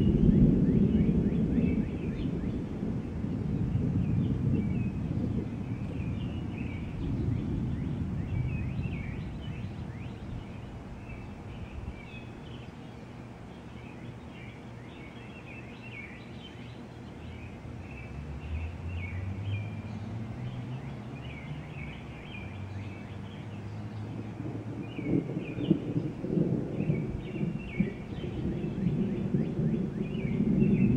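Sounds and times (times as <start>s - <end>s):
distant thunder rumbling: 0.0s - 12.2s, 23.6s - 30.9s.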